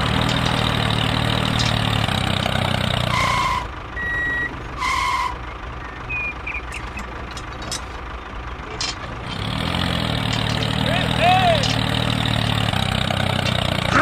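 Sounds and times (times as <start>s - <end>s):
engine running: 0.0s - 14.0s
short electronic beeps: 3.1s - 7.1s.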